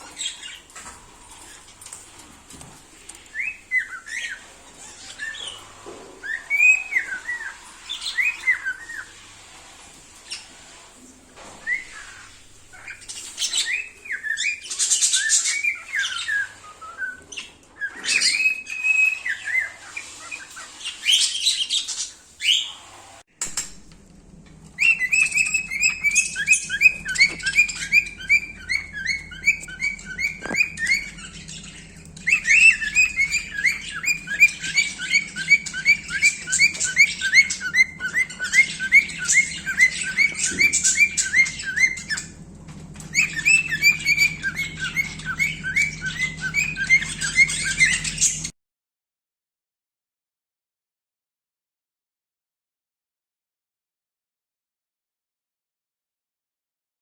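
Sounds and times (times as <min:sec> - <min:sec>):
cockatiel whistling and chirping: 0:03.3 - 0:09.2, 0:11.4 - 0:22.8, 0:24.8 - 0:42.4, 0:43.0 - 0:48.5
low steady hum: 0:23.4 - 0:48.5.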